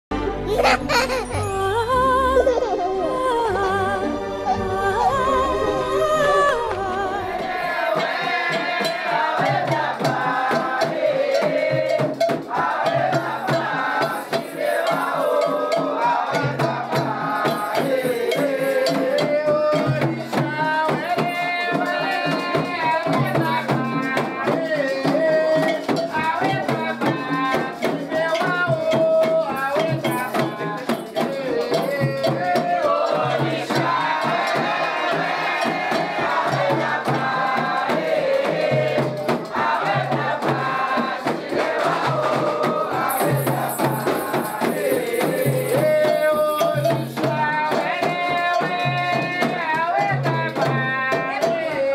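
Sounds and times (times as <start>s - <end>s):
person singing: 0.1s - 8.9s, 12.6s - 34.6s, 36.6s - 51.9s
fast hand-drum strokes: 6.3s - 51.9s
shaken rattles: 12.2s - 22.5s, 27.6s - 36.8s, 40.9s - 47.8s.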